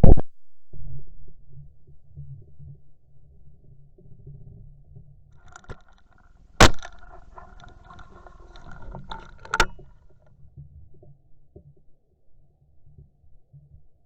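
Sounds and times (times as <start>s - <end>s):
light clicks and knocks: 5.4s - 9.9s
shotgun shots: 6.6s - 7.6s.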